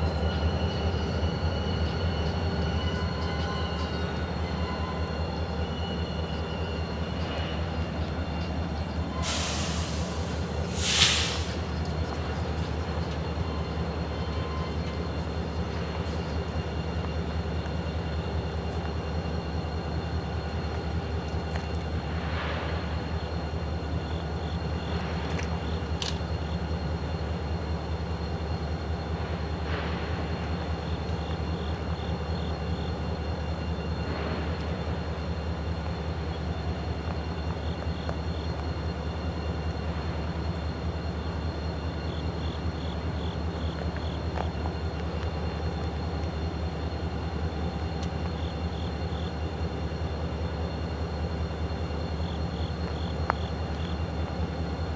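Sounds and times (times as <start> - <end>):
diesel locomotive engines droning: 0.0 - 54.9.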